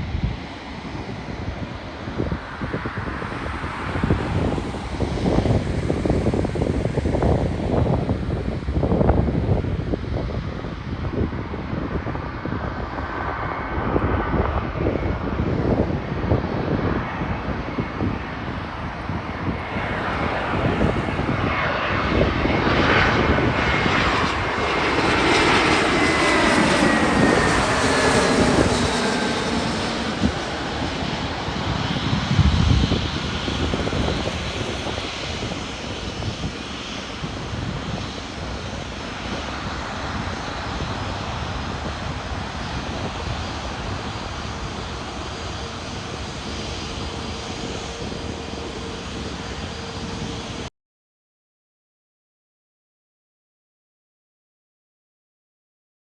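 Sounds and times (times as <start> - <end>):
jet airliner passing: 0.0 - 50.7.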